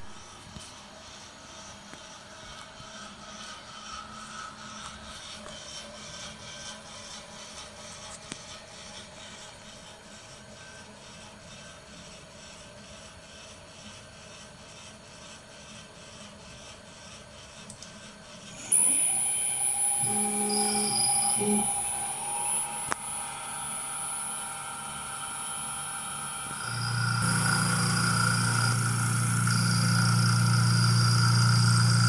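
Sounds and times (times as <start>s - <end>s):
thin high whine: 0.0s - 12.6s, 18.3s - 32.0s
milling cutter rasping: 18.4s - 23.0s, 26.5s - 32.0s.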